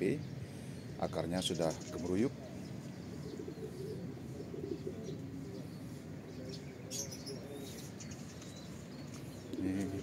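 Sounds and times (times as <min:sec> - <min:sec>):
small birds chirping: 0:00.0 - 0:10.0
doves cooing: 0:01.6 - 0:08.0, 0:09.1 - 0:10.0
rustle: 0:01.6 - 0:10.0.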